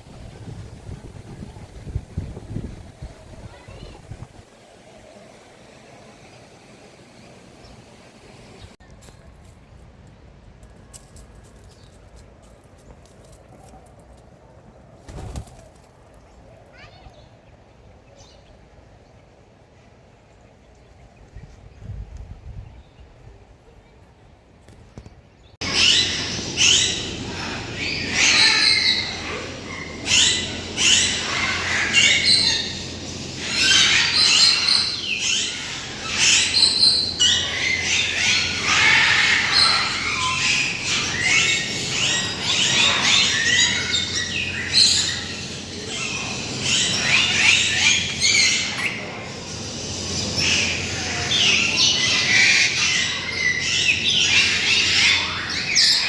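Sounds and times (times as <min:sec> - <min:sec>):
chorus of birds squawking: 0:25.6 - 0:56.0.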